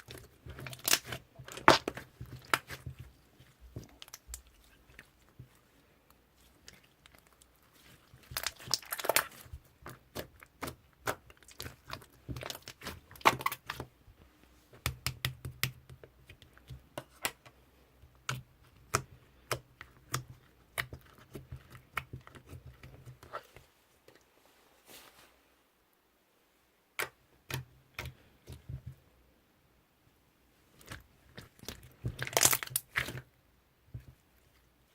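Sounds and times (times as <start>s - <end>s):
slime clicking and crackling: 0.0s - 3.1s, 6.5s - 13.9s, 30.8s - 33.3s.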